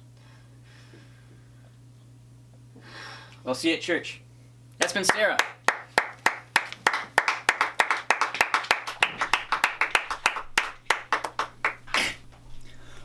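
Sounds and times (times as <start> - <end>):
people clapping: 4.8 - 12.2.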